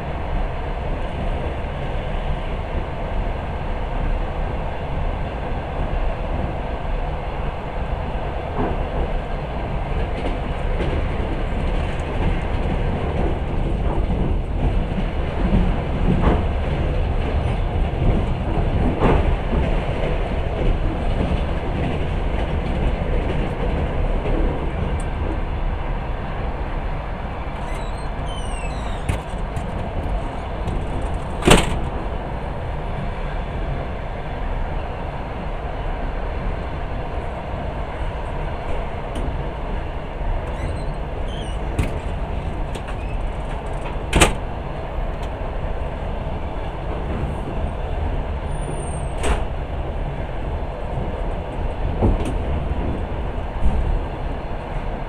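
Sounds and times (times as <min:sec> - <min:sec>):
train rumbling on rails: 0:00.0 - 0:55.0
faint high squeaks: 0:27.6 - 0:29.3, 0:40.4 - 0:41.7, 0:42.9 - 0:43.3.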